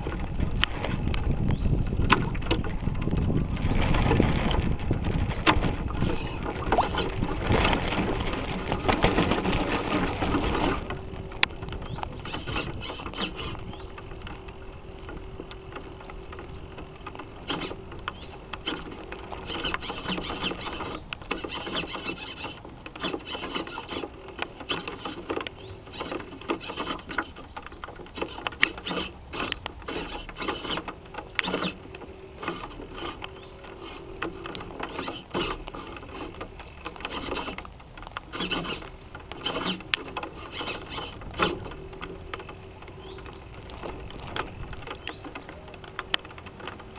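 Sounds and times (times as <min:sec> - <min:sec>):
hum: 0:00.0 - 0:46.9
servos whirring and clicking: 0:28.1 - 0:42.2.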